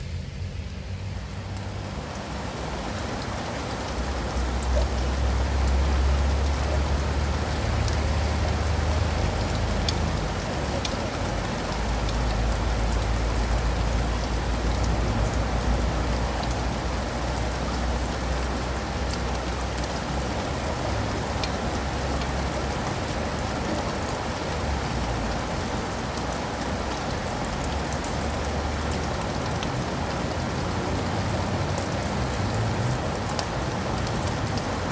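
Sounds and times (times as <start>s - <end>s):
low rumble: 0.0s - 2.3s
steady rain on leaves and pavement: 0.0s - 34.9s
single raindrop ticks: 9.3s - 13.4s.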